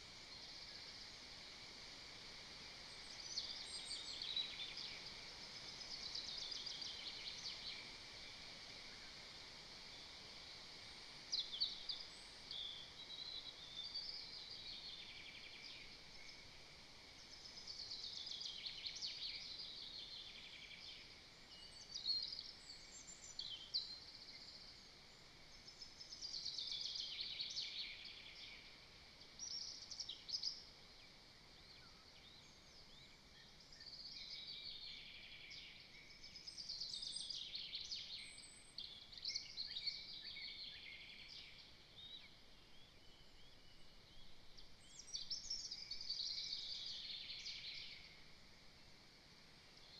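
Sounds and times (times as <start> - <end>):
faint steady hiss: 0.0 - 49.9
songbirds singing: 0.0 - 49.9.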